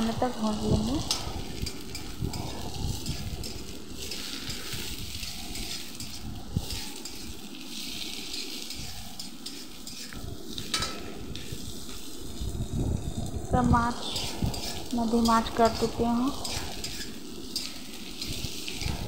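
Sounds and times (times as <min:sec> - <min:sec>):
vegetables sizzling in oil: 0:00.0 - 0:19.0
spatula scraping a pan: 0:01.0 - 0:12.1, 0:14.0 - 0:19.0
spatula clacking on a pan: 0:01.1 - 0:04.7, 0:16.4 - 0:18.9.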